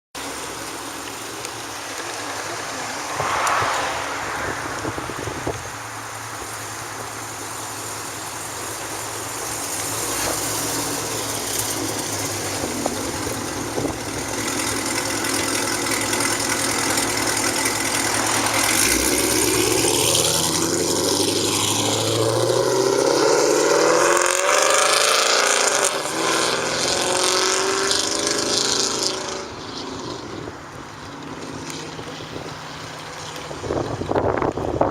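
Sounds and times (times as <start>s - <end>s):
car driving past: 2.0s - 7.0s.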